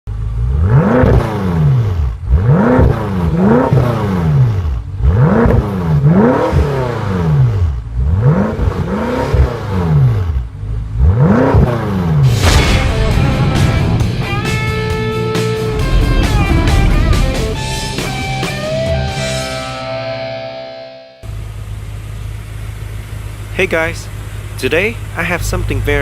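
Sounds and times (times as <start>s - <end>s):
car engine revving in blips: 0.1s - 20.3s.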